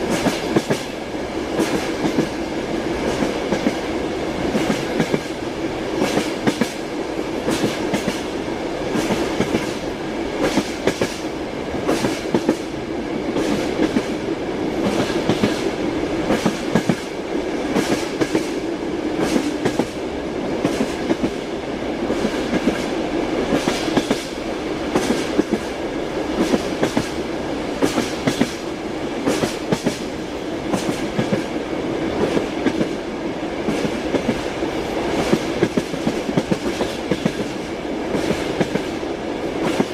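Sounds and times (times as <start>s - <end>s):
train wheels clacking over rail joints: 0.0s - 1.0s, 1.6s - 2.4s, 3.0s - 5.4s, 6.0s - 6.8s, 7.4s - 8.3s, 8.9s - 14.1s, 14.7s - 20.0s, 20.6s - 21.4s, 23.5s - 25.7s, 26.3s - 27.2s, 27.8s - 28.6s, 29.2s - 31.5s, 35.1s - 39.0s
train running rumble: 0.0s - 39.9s.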